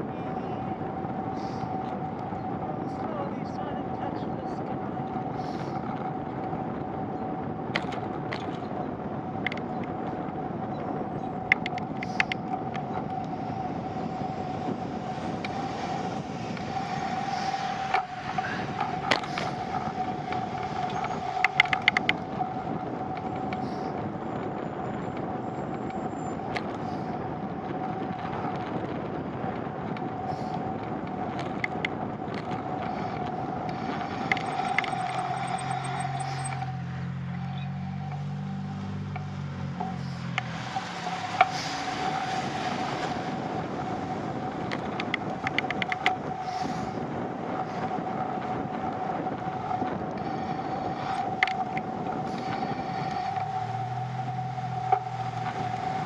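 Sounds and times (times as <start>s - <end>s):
bicycle rolling hum: 0.0s - 56.0s
sharp clicks and taps: 20.3s - 22.3s.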